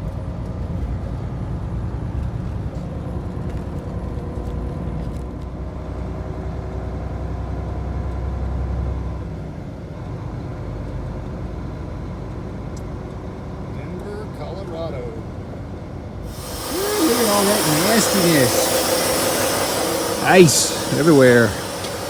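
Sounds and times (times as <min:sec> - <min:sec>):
road noise: 0:16.3 - 0:22.0
truck engine rumble: 0:16.3 - 0:22.0.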